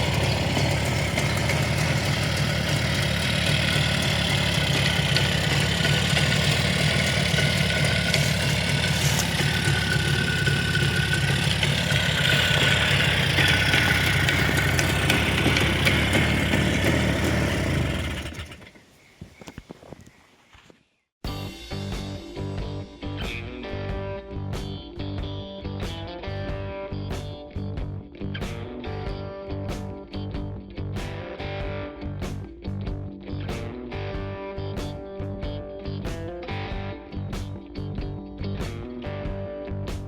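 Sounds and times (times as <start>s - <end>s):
two-stroke engine idling: 0.0s - 18.9s.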